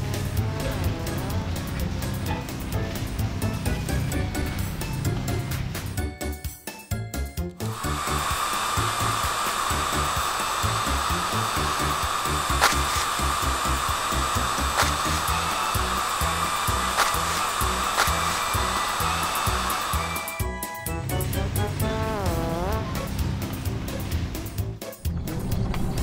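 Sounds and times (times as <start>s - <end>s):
cartoon brush whirring with hiss: 7.6s - 25.0s
background music with bass beat: 20.4s - 26.0s.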